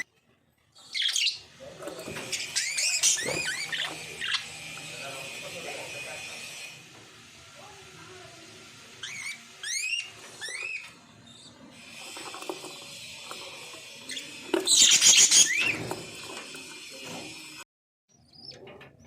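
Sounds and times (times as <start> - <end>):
harsh screechy bird chatter: 0.8 - 6.7, 8.4 - 16.0.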